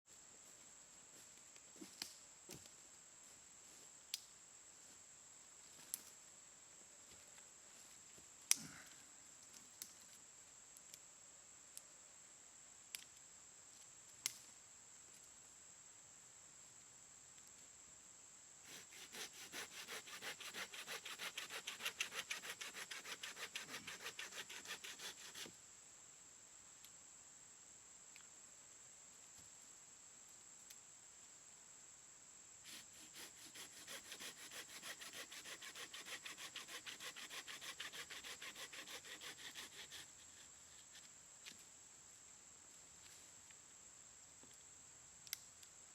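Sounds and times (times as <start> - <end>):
rhythmic rubbing of wood on wood: 18.7 - 25.5, 32.7 - 40.2.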